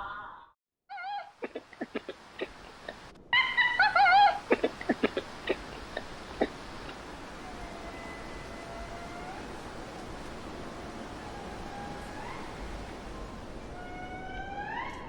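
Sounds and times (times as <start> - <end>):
animal wavering calls: 0.9 - 15.0.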